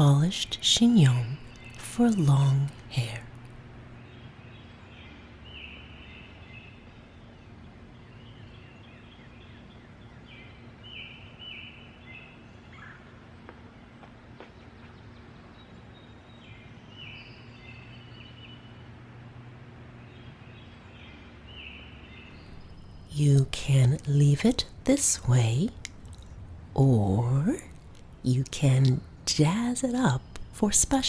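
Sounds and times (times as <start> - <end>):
forest birds calling: 0.0 - 3.8, 20.1 - 31.0
low background hum: 0.0 - 31.0.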